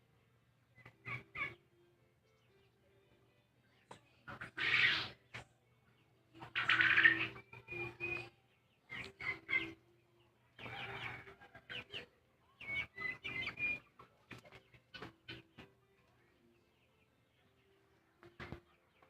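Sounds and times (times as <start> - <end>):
chickens clucking: 0.7 - 1.7, 3.7 - 19.0.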